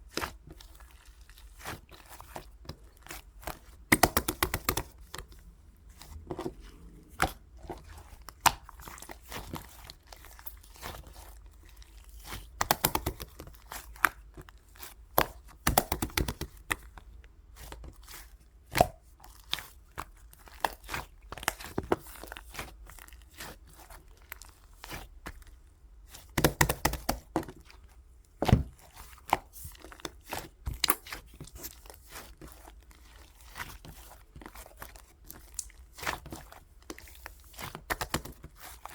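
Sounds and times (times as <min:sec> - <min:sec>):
slime clicking and popping: 0:03.9 - 0:05.2, 0:12.6 - 0:13.4, 0:15.2 - 0:16.7, 0:26.4 - 0:27.3.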